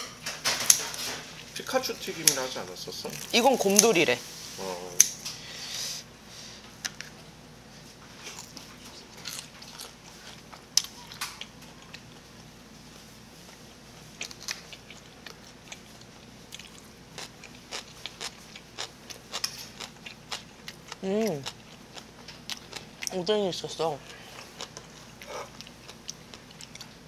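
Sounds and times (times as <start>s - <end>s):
crunchy chewing of fried snack: 8.2s - 23.2s, 24.0s - 27.0s.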